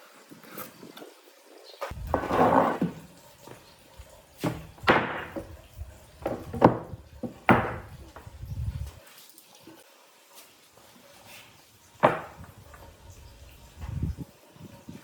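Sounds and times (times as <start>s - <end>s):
heavy knocks on wood: 4.5s - 5.5s, 6.2s - 8.3s, 12.0s - 12.5s.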